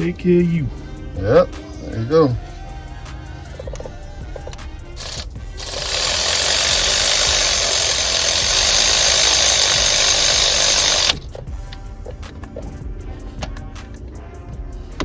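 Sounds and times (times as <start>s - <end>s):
air ratchet hissing: 3.5s - 11.4s.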